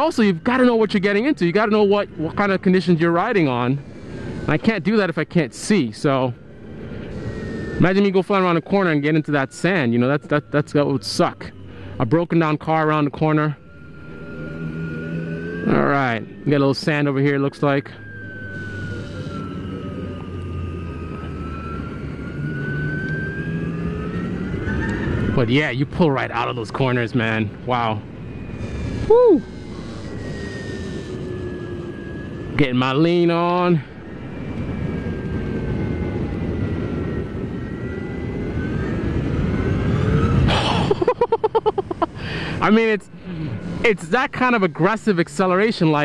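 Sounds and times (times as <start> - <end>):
wind and road noise: 0.0 - 46.0
electric motorcycle motor whining: 6.4 - 8.3, 13.6 - 17.1, 18.0 - 25.3, 28.0 - 32.6.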